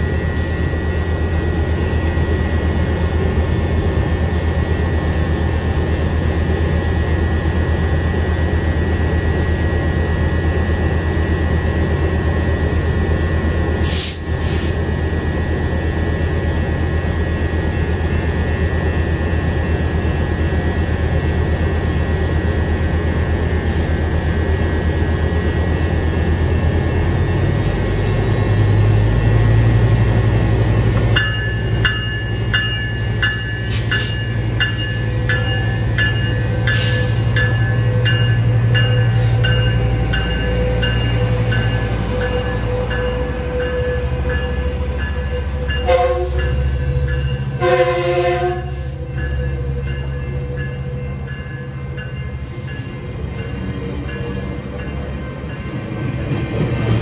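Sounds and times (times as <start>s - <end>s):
diesel locomotive engine: 0.0s - 57.0s
crossing bell dinging: 27.0s - 55.9s
train horn blasts: 44.5s - 49.2s.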